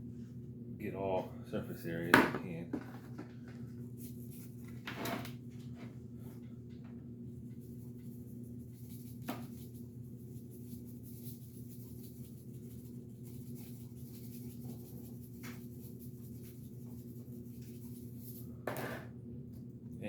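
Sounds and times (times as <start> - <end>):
steady low hum: 0.0 - 20.0
hands rubbing poultry skin: 3.6 - 4.8, 7.4 - 18.5.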